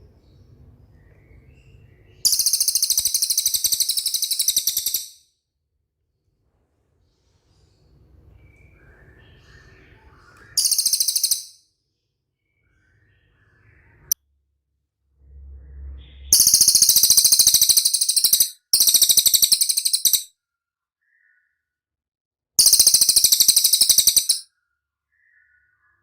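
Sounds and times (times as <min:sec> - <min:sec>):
bird trilling: 0:02.3 - 0:05.1, 0:10.6 - 0:11.6, 0:16.3 - 0:20.3, 0:22.6 - 0:24.4.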